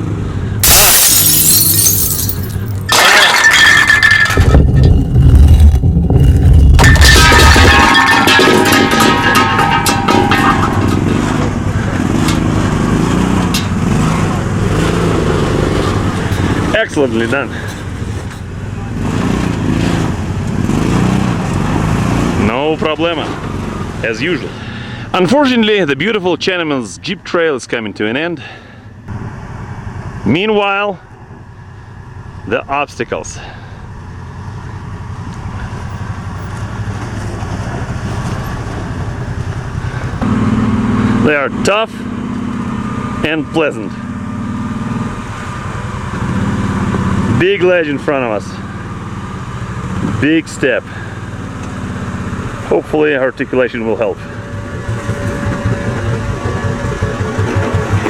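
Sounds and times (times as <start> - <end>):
off-road vehicle engine revving: 10.8 - 25.3, 36.7 - 52.9.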